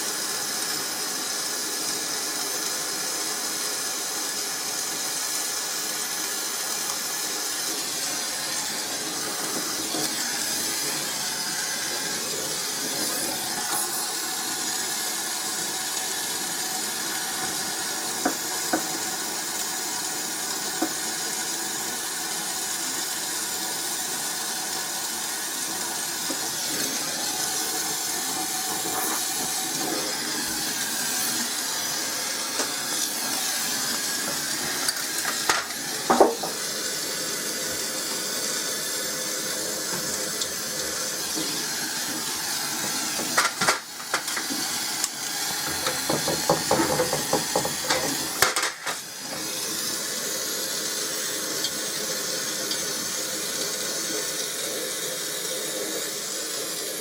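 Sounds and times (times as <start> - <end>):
steady hissing: 6.5 - 19.2, 24.8 - 53.1
knocks and rattles: 45.6 - 48.9.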